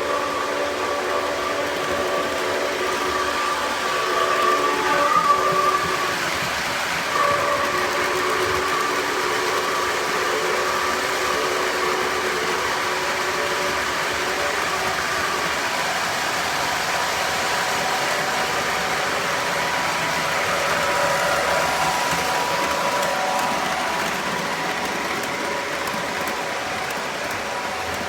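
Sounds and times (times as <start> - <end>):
model train wheels rumbling: 0.0 - 28.0.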